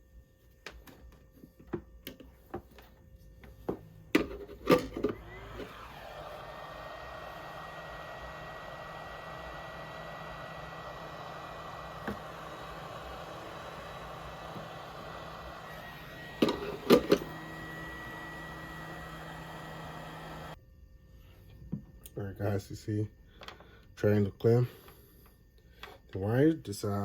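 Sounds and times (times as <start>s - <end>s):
heat gun blowing with faint whine: 5.0s - 20.6s.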